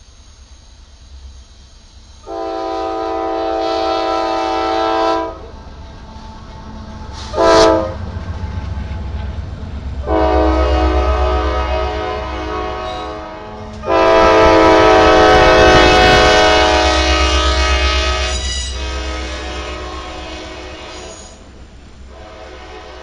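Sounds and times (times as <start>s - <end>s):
locomotive rumble: 0.0s - 23.0s
locomotive air horn blasts: 2.2s - 5.5s, 7.2s - 8.0s, 10.0s - 21.5s, 22.1s - 23.0s.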